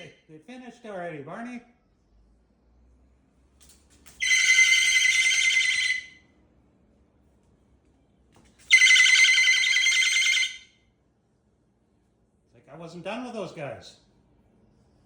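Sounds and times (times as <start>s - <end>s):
cockatoo calling loudly: 4.2s - 6.2s, 8.7s - 10.6s.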